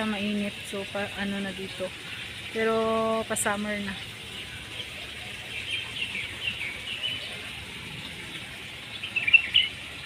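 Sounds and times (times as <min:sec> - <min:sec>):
outdoor background hum: 0:00.0 - 0:10.0
small birds chirping: 0:01.5 - 0:10.0.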